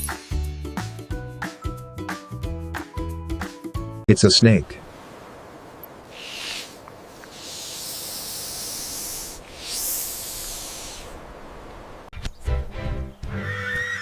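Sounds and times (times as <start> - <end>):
snake hissing: 6.0 - 11.4.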